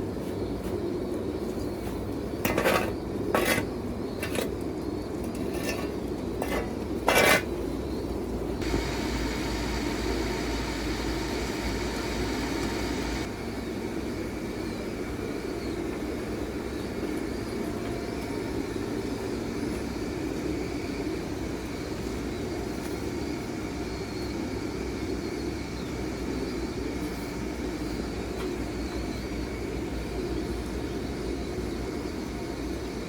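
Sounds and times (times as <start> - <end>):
low steady hum: 7.8 - 15.0
hiss with faint whine: 8.6 - 17.6.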